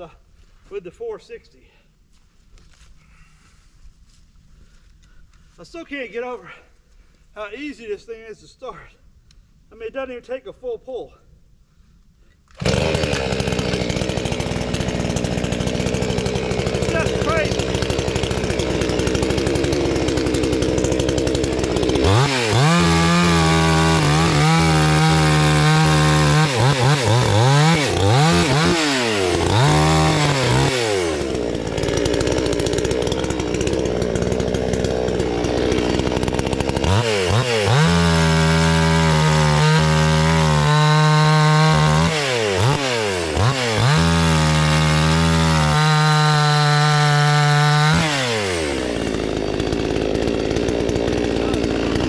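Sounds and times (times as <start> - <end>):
chainsaw revving and cutting wood: 12.5 - 52.0.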